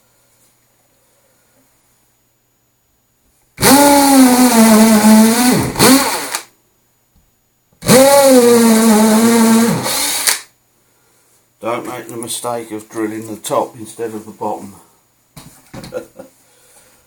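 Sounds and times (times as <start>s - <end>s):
electric drill boring into wood: 3.6s - 6.5s, 7.8s - 10.5s.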